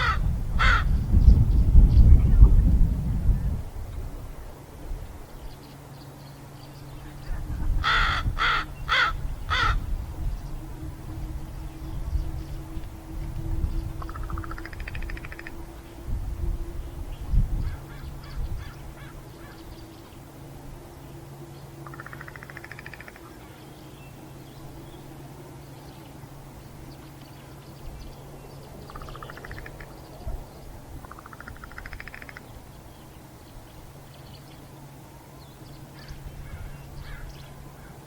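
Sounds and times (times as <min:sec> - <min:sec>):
crow gurgling rattling call: 0:00.0 - 0:00.9, 0:07.8 - 0:09.8
steady low hum: 0:00.0 - 0:38.0.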